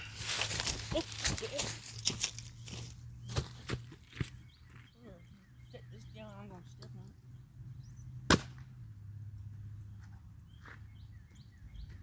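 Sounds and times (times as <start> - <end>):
sharp crack: 8.3 - 8.7.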